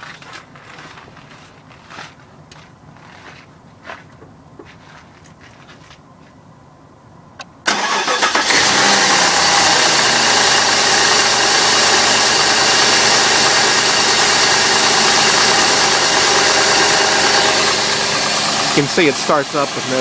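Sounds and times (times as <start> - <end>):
car engine cranking and idling: 7.2 - 20.0.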